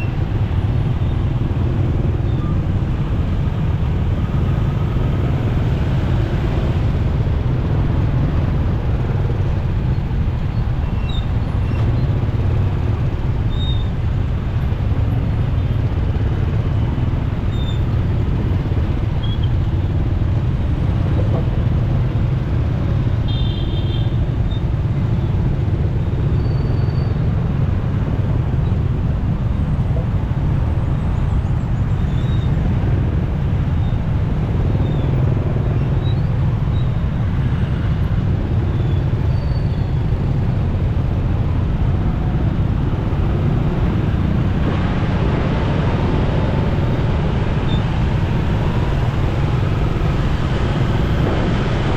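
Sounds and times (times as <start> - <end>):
motorcycle road noise: 0.0 - 51.9
wind rumble: 27.2 - 51.9.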